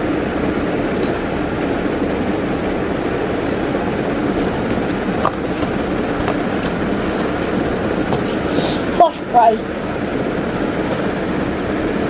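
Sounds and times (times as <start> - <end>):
steady rumbling: 0.0 - 12.0.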